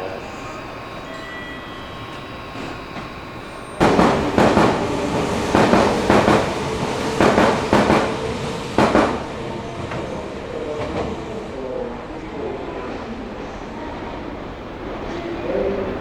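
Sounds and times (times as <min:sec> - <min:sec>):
train wheels clattering over rail joints: 0:03.8 - 0:09.3.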